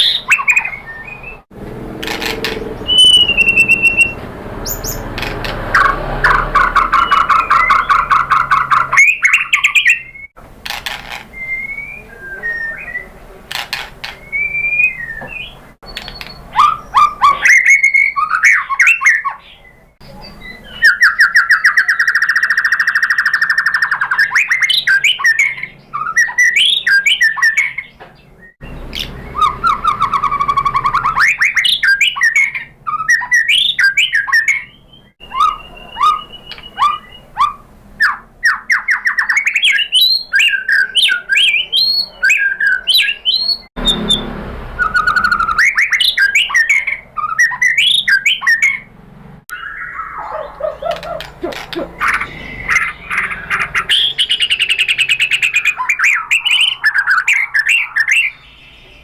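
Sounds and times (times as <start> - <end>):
bird singing whistles and chatter: 0.0 - 1.4, 2.2 - 5.1, 5.7 - 10.4, 11.2 - 48.9, 49.5 - 59.0
bird rattling trills: 2.0 - 10.0.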